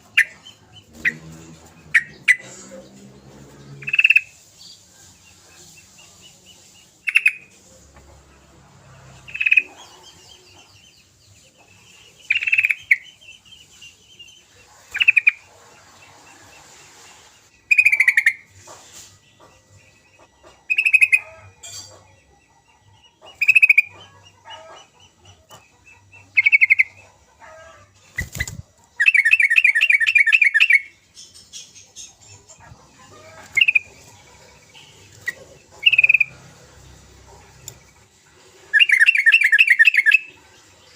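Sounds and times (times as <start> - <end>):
bird chattering: 3.8 - 4.4, 7.0 - 7.5, 9.3 - 10.7, 12.0 - 13.2, 14.8 - 15.5, 17.7 - 18.5, 23.2 - 27.0, 27.6 - 36.6, 38.6 - 40.4.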